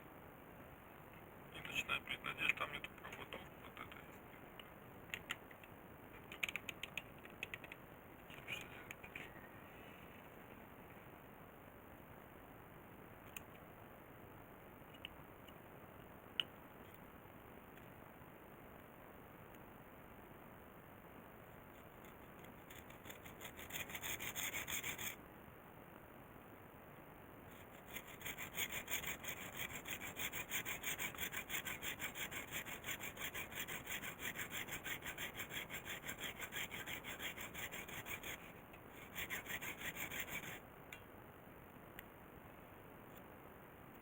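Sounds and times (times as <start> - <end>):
hacksaw sawing: 22.7 - 25.2, 27.8 - 40.6.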